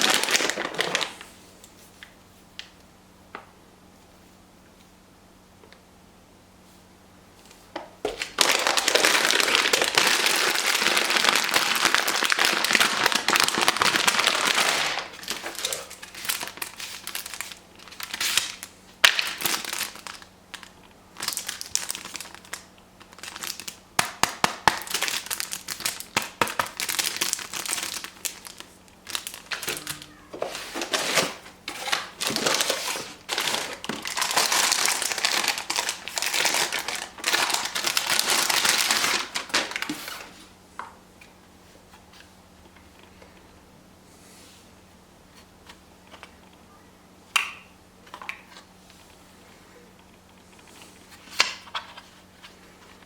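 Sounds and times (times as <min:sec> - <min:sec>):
packaging crinkling: 0:00.0 - 0:01.4, 0:08.1 - 0:40.4.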